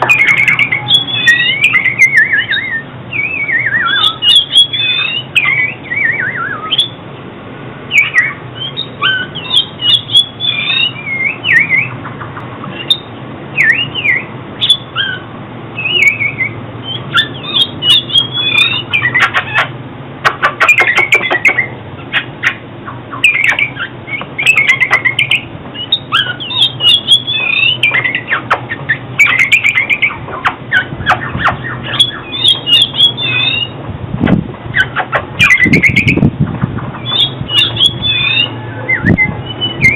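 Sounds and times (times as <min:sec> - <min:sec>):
bird singing whistled phrases: 0:00.0 - 0:07.0, 0:07.9 - 0:12.0, 0:12.8 - 0:19.7, 0:20.6 - 0:33.8, 0:34.7 - 0:36.3, 0:37.0 - 0:39.9
bird harsh clicking notes: 0:16.9 - 0:33.8, 0:34.7 - 0:38.5.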